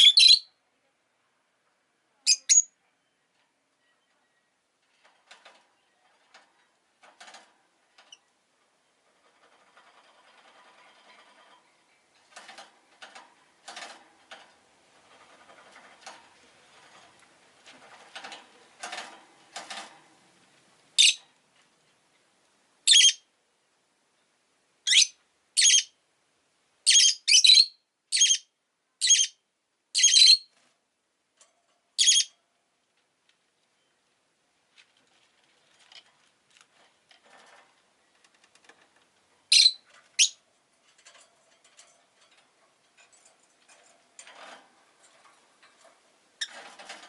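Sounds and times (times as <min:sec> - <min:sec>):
lovebird high-pitched calls: 0:00.0 - 0:00.6, 0:02.3 - 0:02.8, 0:21.0 - 0:21.2, 0:22.9 - 0:23.2, 0:24.8 - 0:26.0, 0:26.9 - 0:29.4, 0:30.0 - 0:30.5, 0:32.0 - 0:32.3, 0:39.5 - 0:40.4.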